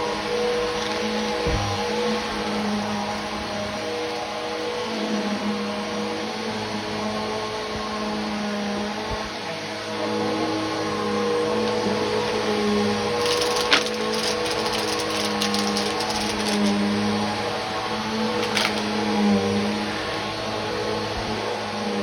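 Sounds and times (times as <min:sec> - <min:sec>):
vacuum cleaner running: 0:00.0 - 0:22.0
sharp clicks and crackles: 0:13.2 - 0:17.0, 0:18.4 - 0:19.0.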